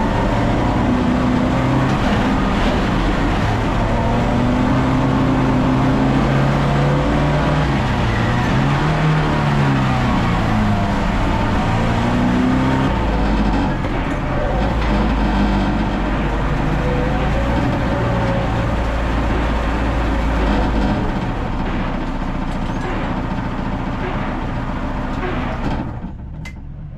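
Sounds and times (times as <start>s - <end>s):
car engine running: 0.0s - 26.9s.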